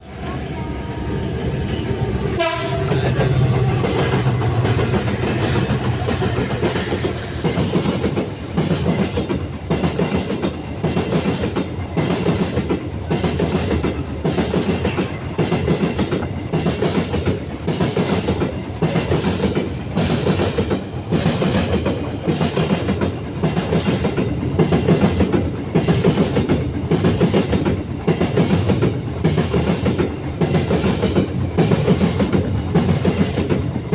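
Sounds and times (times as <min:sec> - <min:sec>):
low rumble of train: 0:00.0 - 0:33.9
train horn: 0:02.3 - 0:03.5.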